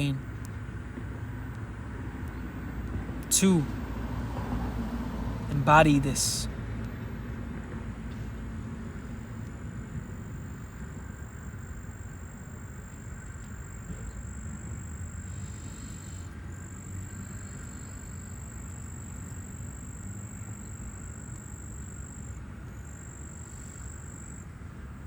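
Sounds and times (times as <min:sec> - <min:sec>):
steady low rumble: 0:00.0 - 0:12.5
high-pitched insect trill: 0:09.0 - 0:25.0.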